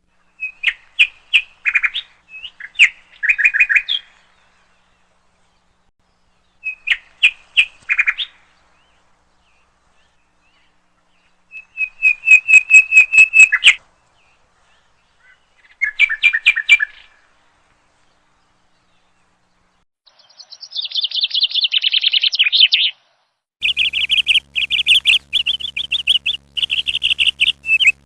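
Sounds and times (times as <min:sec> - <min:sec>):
woodpecker calling: 0:23.6 - 0:28.0.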